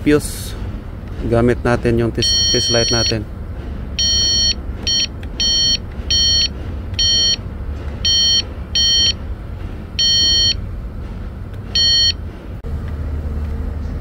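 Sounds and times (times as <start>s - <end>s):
steady low rumble: 0.0s - 14.0s
short high electronic beeps: 4.0s - 7.4s, 10.0s - 10.6s.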